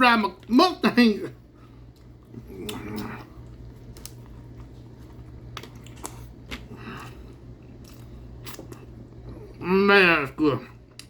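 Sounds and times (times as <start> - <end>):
man chewing food: 1.4 - 9.6.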